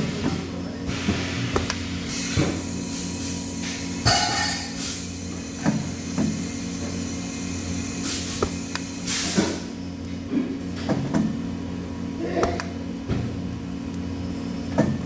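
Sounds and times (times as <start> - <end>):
workshop machinery humming: 0.0 - 15.0.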